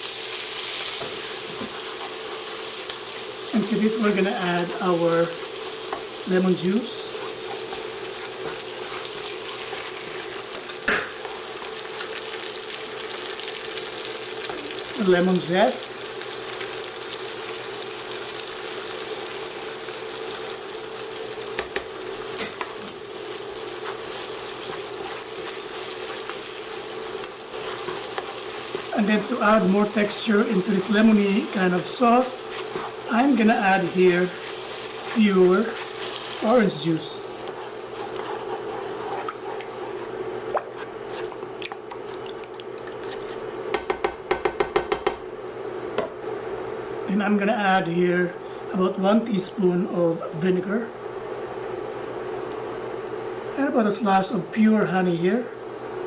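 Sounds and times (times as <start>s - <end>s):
utensil stirring sauce in pan: 0.0s - 15.3s, 16.1s - 45.1s
sizzling in hot frying oil: 0.0s - 44.2s
steady low hum: 20.4s - 44.3s.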